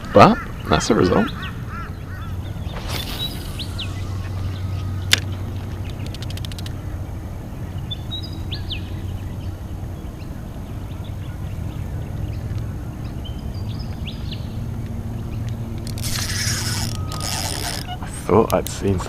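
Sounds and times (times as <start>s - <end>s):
bird calling: 0.0s - 7.0s, 15.7s - 18.3s
low outdoor rumble: 1.4s - 19.0s.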